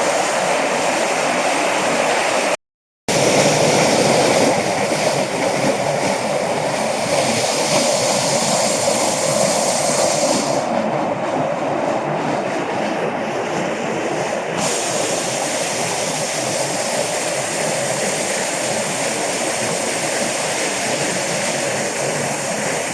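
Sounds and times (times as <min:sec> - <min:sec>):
stream rushing over rocks: 0:00.0 - 0:12.6, 0:13.4 - 0:22.9.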